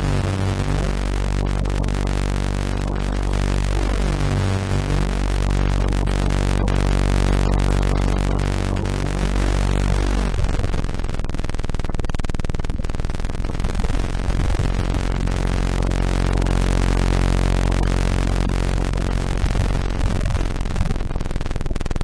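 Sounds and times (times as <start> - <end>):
harsh electronic buzzing drone: 0.0 - 22.0.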